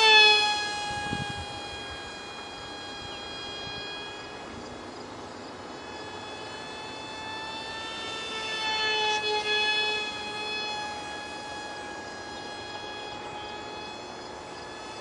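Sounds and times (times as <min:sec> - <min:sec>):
model plane propeller whining: 0:00.0 - 0:15.0.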